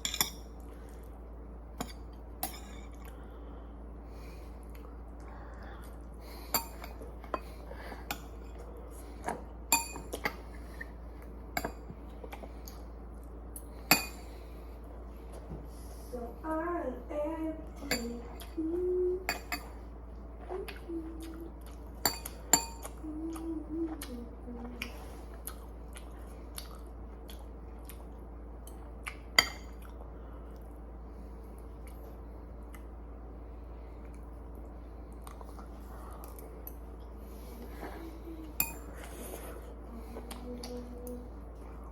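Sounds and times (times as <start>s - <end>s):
steady low hum: 0.0s - 41.9s
person making wordless sounds: 20.4s - 21.7s, 22.9s - 25.0s, 39.9s - 41.4s.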